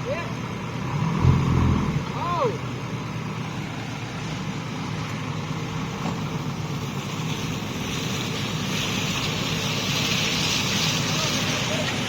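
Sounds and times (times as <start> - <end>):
vehicle engine low rumble: 0.0 - 12.0
hiss: 6.1 - 12.0.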